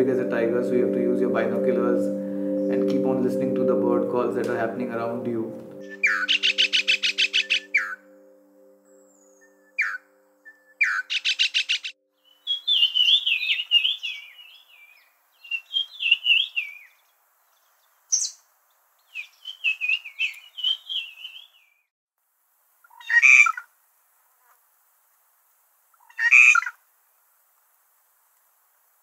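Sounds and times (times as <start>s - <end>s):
birds singing and calling: 5.7s - 8.2s, 8.9s - 18.4s, 19.0s - 21.8s.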